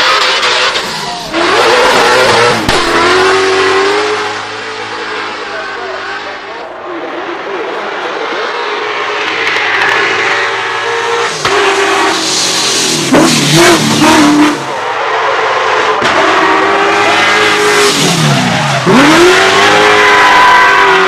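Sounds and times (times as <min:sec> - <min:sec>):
car engine revving hard: 0:00.0 - 0:06.6, 0:07.2 - 0:14.7, 0:15.3 - 0:21.0.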